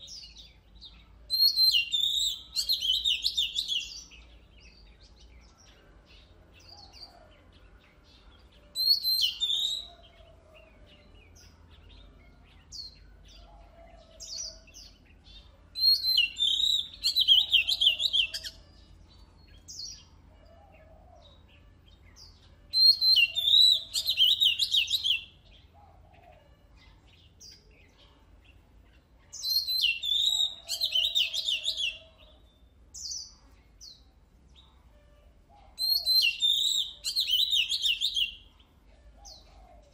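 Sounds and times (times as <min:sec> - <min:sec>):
bird warbling song: 0:00.0 - 0:34.8, 0:35.5 - 0:39.9.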